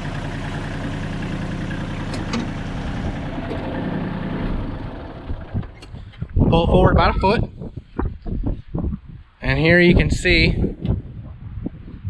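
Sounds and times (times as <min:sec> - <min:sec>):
tractor diesel engine running: 0:00.0 - 0:08.2.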